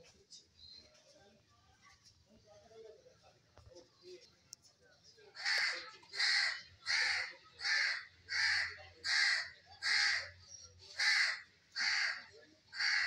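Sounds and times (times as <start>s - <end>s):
bird harsh raspy call: 5.4s - 13.0s.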